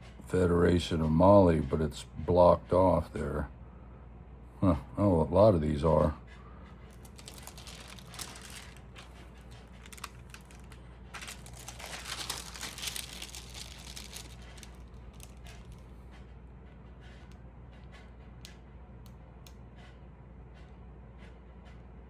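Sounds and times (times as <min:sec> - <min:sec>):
pages rustling and crinkling: 0:06.9 - 0:15.8.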